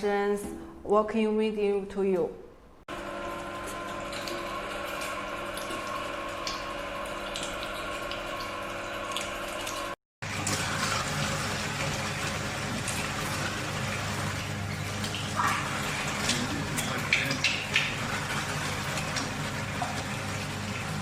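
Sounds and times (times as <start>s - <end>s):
electric meat grinder running: 2.9s - 7.5s, 10.2s - 14.8s.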